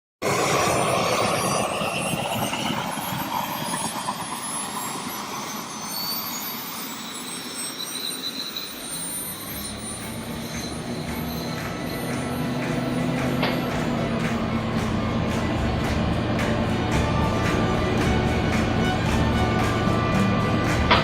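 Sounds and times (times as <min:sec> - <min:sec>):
low steady drone: 0:00.2 - 0:07.5, 0:09.3 - 0:21.0
jet engine rushing whine: 0:00.2 - 0:21.0.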